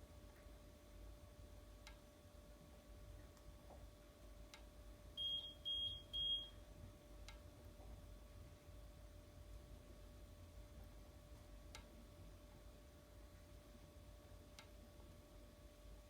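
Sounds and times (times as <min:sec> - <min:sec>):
faint steady hum: 0:00.0 - 0:16.0
short high-pitched beeps: 0:05.2 - 0:06.6.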